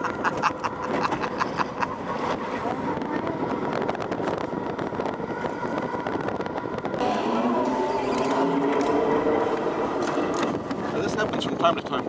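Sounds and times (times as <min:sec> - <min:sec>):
road noise rush: 0:00.0 - 0:12.0
thin electric motor whine: 0:04.0 - 0:11.6.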